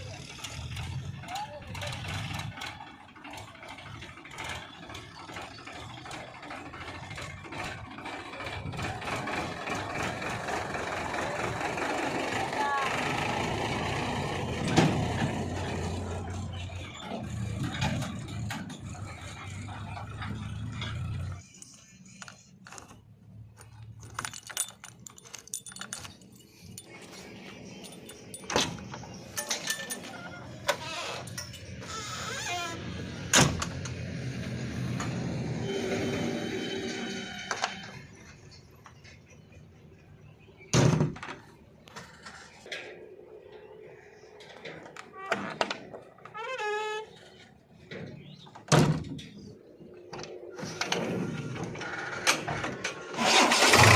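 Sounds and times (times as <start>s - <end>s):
heavy machinery diesel engine running: 0.0s - 21.5s, 50.7s - 53.9s
light rattling and clicking: 17.5s - 31.9s.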